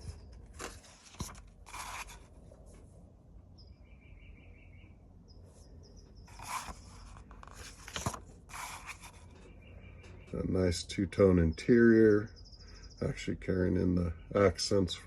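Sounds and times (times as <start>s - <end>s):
magazine pages rustling: 0.0s - 2.4s, 6.3s - 9.3s.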